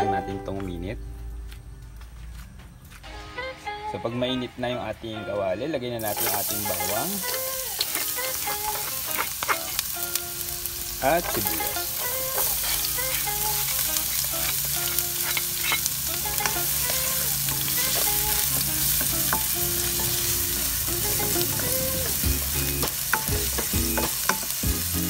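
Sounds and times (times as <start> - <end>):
garlic and onion sizzling in oil: 6.0 - 25.0
spatula clicking and scraping pan: 7.3 - 9.9, 12.4 - 19.6.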